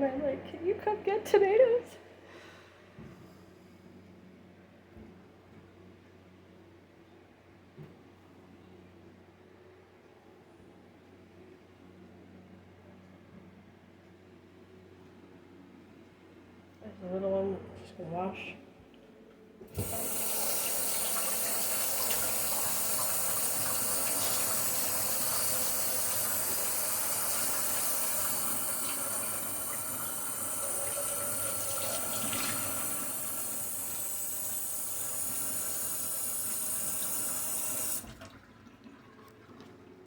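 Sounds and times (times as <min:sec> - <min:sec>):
tap water running into sink: 0:19.7 - 0:39.9.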